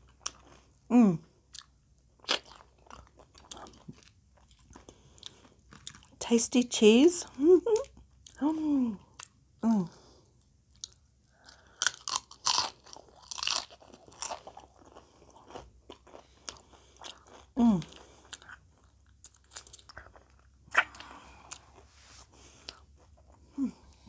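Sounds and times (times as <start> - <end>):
wet chewing: 1.5 - 6.2, 10.7 - 24.0
person humming: 9.6 - 9.9
chips crunching: 11.8 - 17.4.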